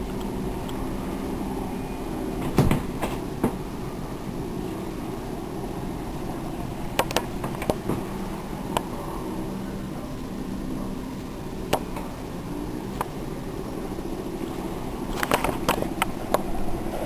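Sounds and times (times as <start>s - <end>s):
machine hum: 0.0s - 17.0s
sharp clicks and knocks: 7.0s - 8.1s.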